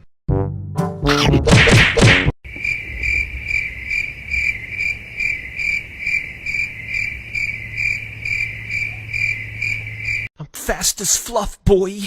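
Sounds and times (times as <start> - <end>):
cricket chirping: 2.5 - 10.3.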